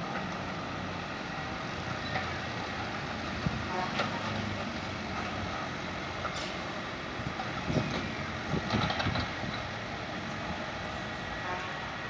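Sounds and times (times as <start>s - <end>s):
heavy construction machinery running: 0.0s - 12.0s.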